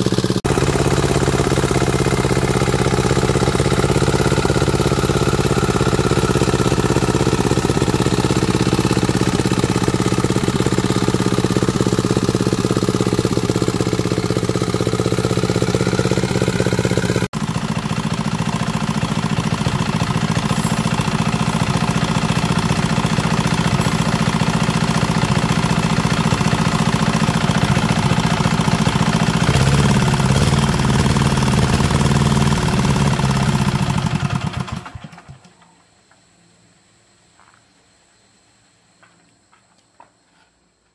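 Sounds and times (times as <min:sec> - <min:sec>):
diesel engine running: 0:00.0 - 0:35.3.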